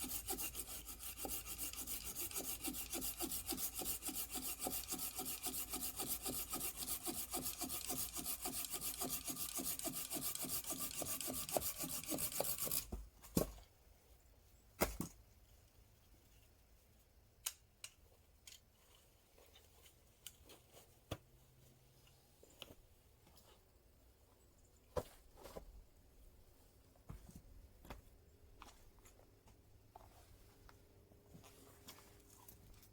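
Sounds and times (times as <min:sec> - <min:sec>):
hand saw cutting wood: 0:00.0 - 0:12.9.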